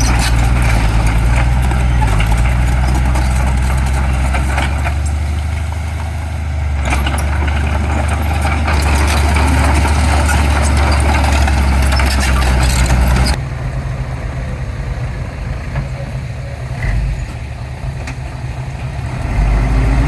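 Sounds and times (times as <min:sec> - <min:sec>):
metal clanks: 0:00.0 - 0:06.1, 0:06.8 - 0:13.4
scraping: 0:00.0 - 0:06.2, 0:06.8 - 0:13.4
diesel engine running: 0:00.0 - 0:20.0.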